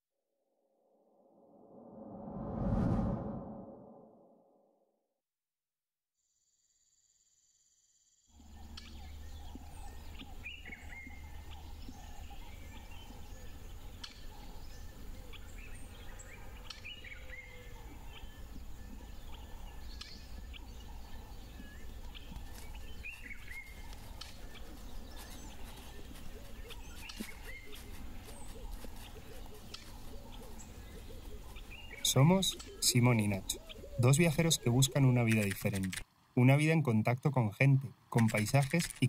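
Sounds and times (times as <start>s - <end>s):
steady low rumble: 1.5s - 4.2s
birds chirping and calling: 8.4s - 39.0s
sharp ticks: 34.6s - 36.0s.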